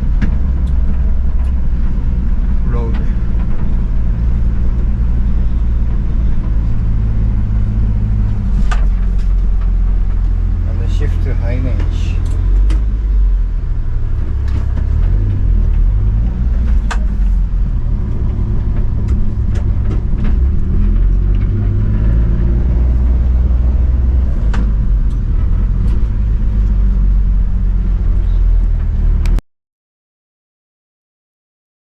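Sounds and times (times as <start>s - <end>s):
truck engine rumbling: 0.0s - 29.4s
knocks and rattles: 14.2s - 21.9s.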